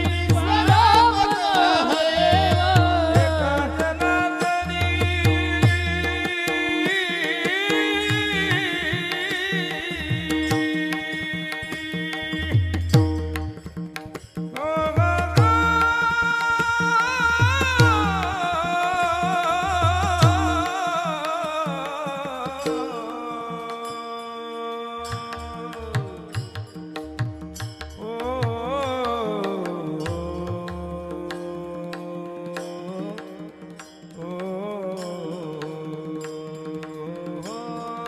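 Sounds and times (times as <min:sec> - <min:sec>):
held accompaniment: 0:00.0 - 0:23.9
man singing devotional song: 0:00.0 - 0:38.0
percussion strokes: 0:00.0 - 0:38.0.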